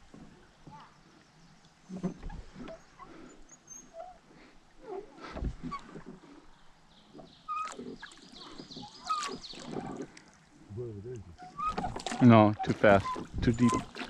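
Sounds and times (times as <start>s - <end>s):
birds chirping: 6.4s - 10.0s.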